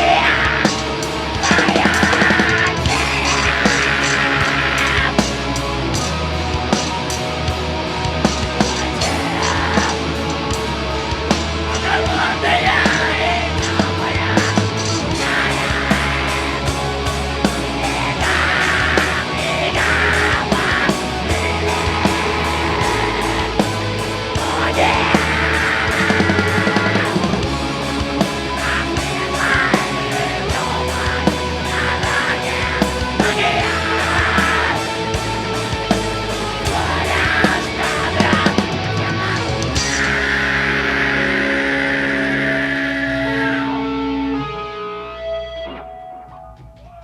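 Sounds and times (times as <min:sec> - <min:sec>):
drums hitting: 0:00.0 - 0:42.0
heavy metal band playing live: 0:00.0 - 0:47.0
person yelling vocals: 0:17.7 - 0:23.6, 0:28.6 - 0:35.0, 0:36.6 - 0:40.8.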